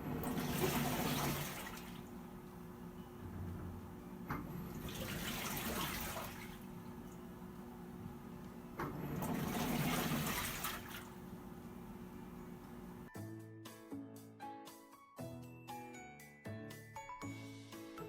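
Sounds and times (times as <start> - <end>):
low steady hum: 0.0 - 13.1
water sloshing in washing machine: 0.0 - 13.1.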